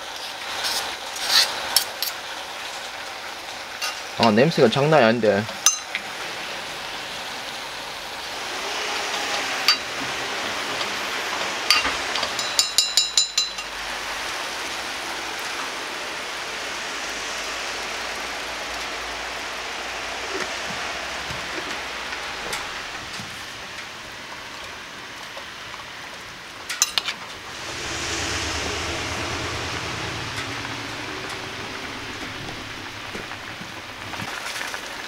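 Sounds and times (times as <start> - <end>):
meat and vegetables sizzling: 8.4 - 10.4.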